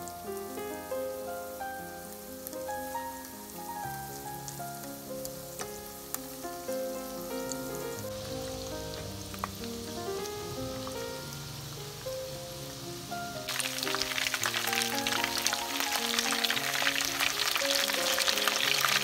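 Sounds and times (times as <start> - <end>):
chicken frying in hot oil: 0.0 - 19.0
soft background music: 0.0 - 19.0
oil popping: 4.2 - 19.0.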